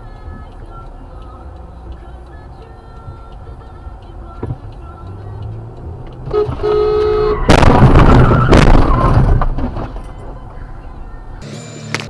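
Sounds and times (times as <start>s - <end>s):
car road noise: 0.0s - 12.0s
car horn blaring: 6.2s - 8.1s
loud collision crash: 7.5s - 9.9s.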